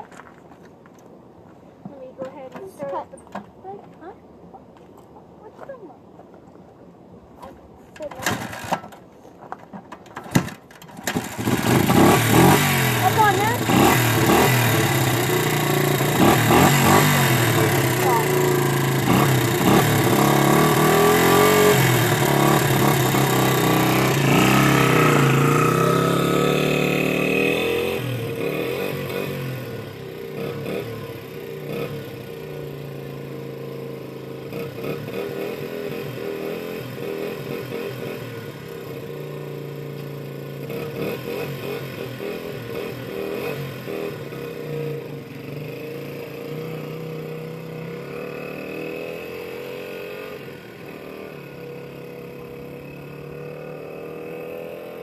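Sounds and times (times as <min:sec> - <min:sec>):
dirt bike engine revving: 0:11.0 - 0:39.3, 0:40.5 - 0:55.0.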